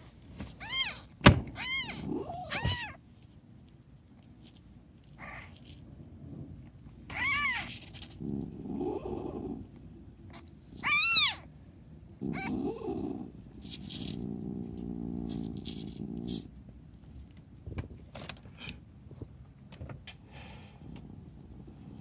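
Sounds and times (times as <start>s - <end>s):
kitten mewing: 0.6s - 3.0s.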